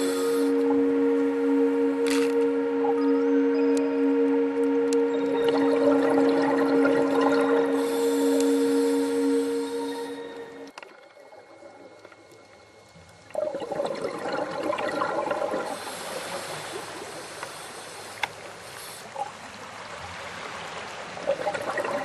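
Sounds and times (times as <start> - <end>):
music: 0.0 - 10.8
sea water washing in: 3.9 - 12.2, 13.2 - 22.0.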